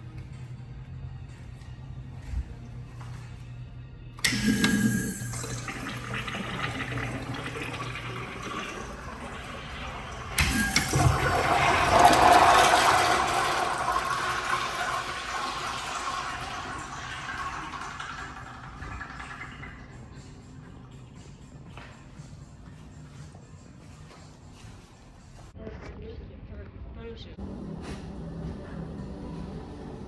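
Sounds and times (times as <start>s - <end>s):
toilet flushing water rush: 4.2s - 20.4s.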